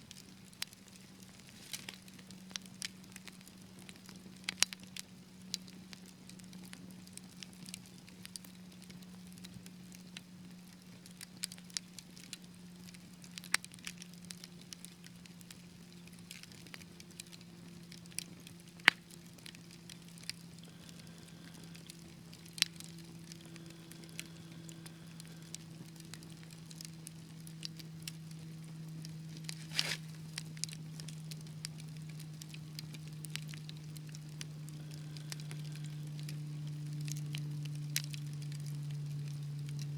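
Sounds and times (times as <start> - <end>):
wood fire crackling: 0.0 - 39.9
steady low hum: 15.3 - 39.9
fire hissing flare: 28.5 - 31.1.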